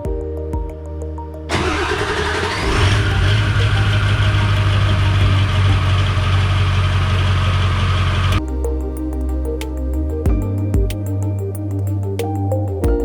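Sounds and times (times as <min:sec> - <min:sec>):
engine starting and idling: 0:01.5 - 0:08.4.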